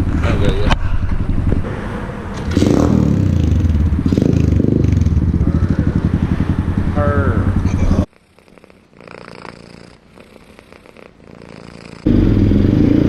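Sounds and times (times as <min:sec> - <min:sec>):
dirt bike engine running: 0:02.4 - 0:08.0, 0:12.1 - 0:13.0.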